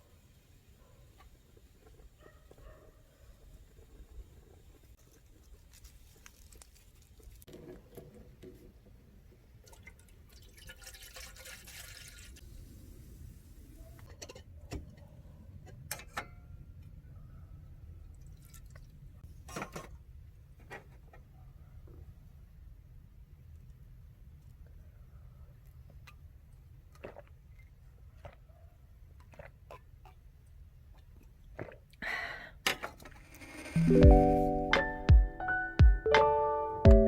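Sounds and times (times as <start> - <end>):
liquid pouring: 9.6 - 12.4.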